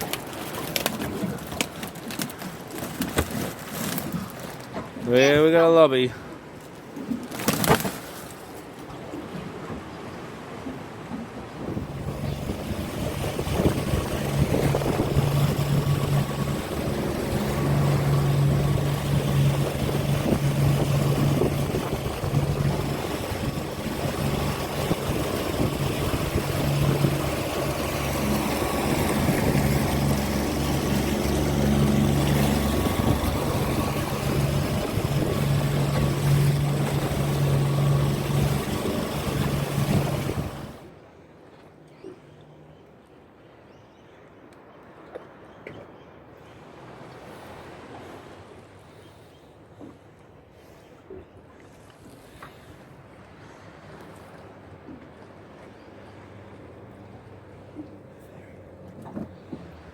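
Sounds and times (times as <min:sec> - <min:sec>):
water noise: 0:00.0 - 0:42.3, 0:44.5 - 0:59.9
wind: 0:00.0 - 0:59.9
outboard motor running: 0:10.6 - 0:40.9, 0:52.0 - 0:59.9.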